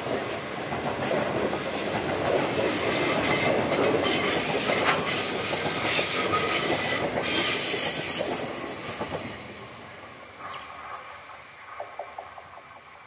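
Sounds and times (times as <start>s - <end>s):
train wheel and rail noise: 0.0s - 13.0s
high hiss: 4.7s - 13.0s.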